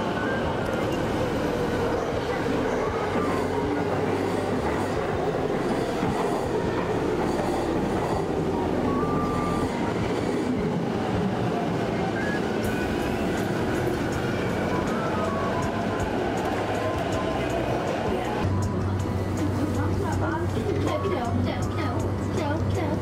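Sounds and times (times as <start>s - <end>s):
train wheels rumbling on rail: 0.0s - 23.0s
high squeal: 8.8s - 9.9s.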